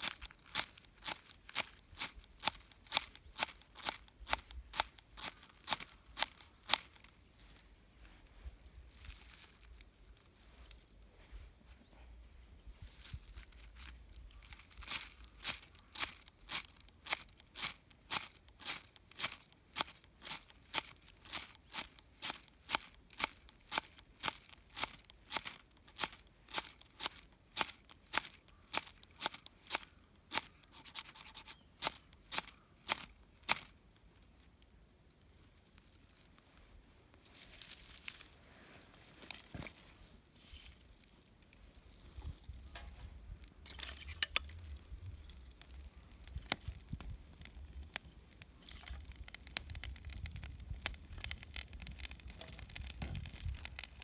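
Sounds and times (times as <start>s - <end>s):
soft rustling: 35.7s - 47.2s.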